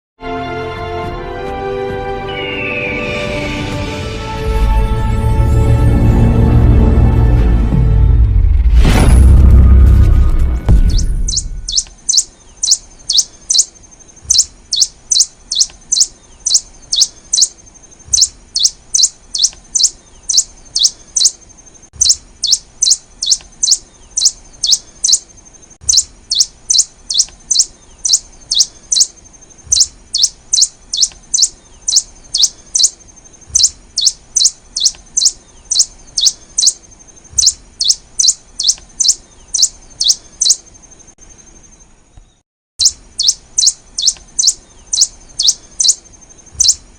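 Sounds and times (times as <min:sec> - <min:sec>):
finch high chirps: 0:10.8 - 0:46.9.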